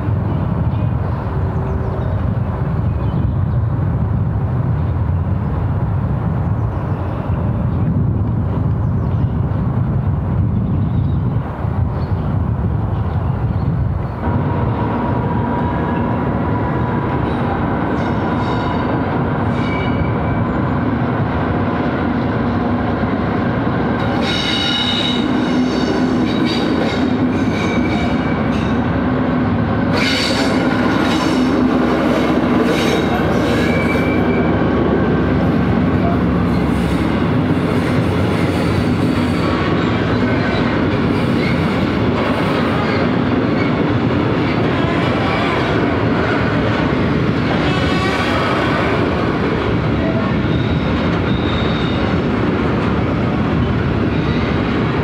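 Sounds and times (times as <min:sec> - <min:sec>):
train rumbling past: 0:00.0 - 0:55.0
train wheels squealing: 0:17.9 - 0:20.7, 0:24.0 - 0:28.8, 0:29.9 - 0:31.6, 0:32.7 - 0:34.6, 0:50.4 - 0:52.2.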